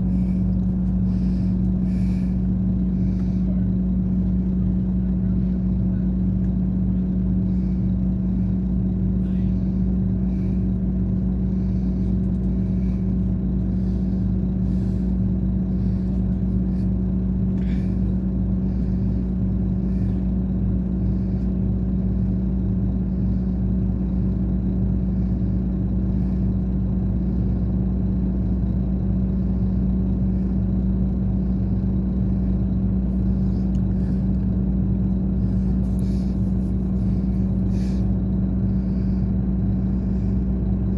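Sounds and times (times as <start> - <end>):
coach engine droning: 0.0 - 40.9.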